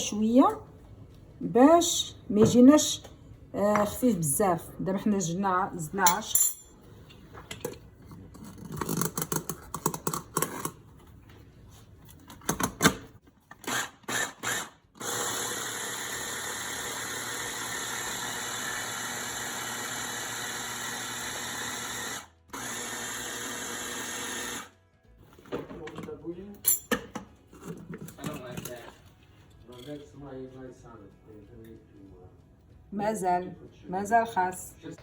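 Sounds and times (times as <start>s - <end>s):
electric blender running: 13.6s - 24.8s.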